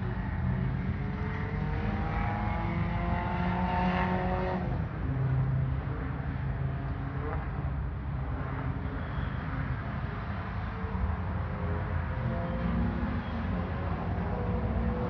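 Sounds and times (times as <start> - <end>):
car engine revving: 0.0 - 5.8.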